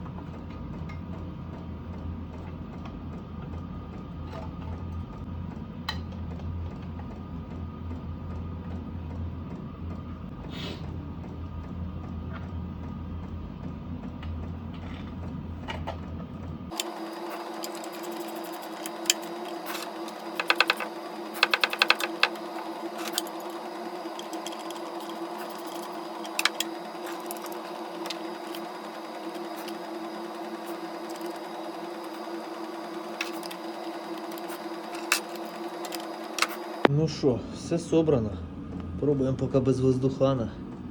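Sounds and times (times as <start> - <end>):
steady hum: 16.6 - 39.0
hand tools clicking on metal: 17.6 - 22.4.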